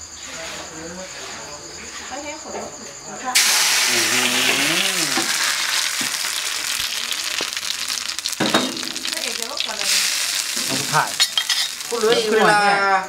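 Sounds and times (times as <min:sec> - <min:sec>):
leaves deep-frying in hot oil: 0:03.3 - 0:13.0.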